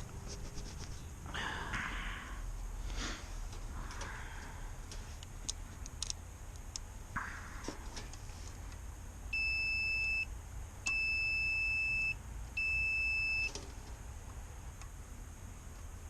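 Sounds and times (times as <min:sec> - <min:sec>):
multimeter continuity beeps: 0:09.3 - 0:13.6.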